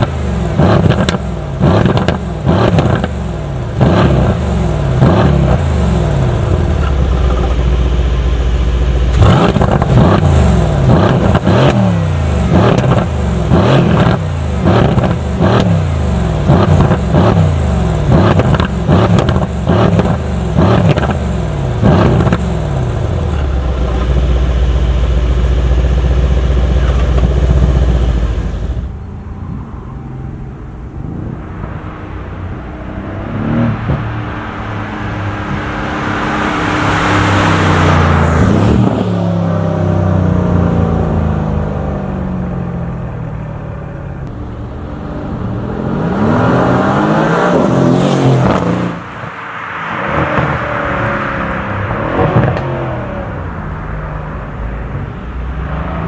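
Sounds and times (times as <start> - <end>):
exhaust crackles: 0.0 - 29.0
car exhaust droning and revving: 0.0 - 56.0.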